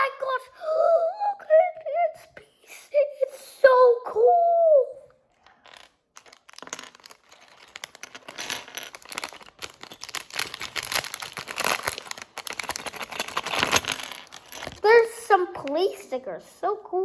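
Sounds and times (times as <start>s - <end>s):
plastic bag crinkling: 5.5s - 14.9s.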